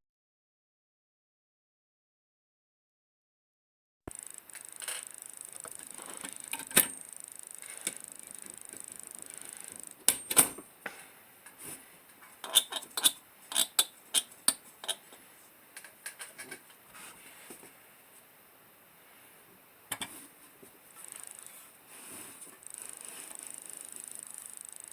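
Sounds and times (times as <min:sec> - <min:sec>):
faint high hiss: 0:04.1 - 0:12.4
small metal parts clinking: 0:04.4 - 0:07.0.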